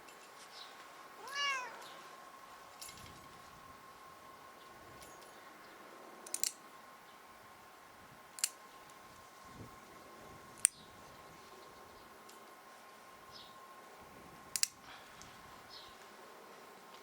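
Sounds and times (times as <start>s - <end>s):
nail clippers snipping claws: 8.4s - 8.6s, 14.6s - 14.8s.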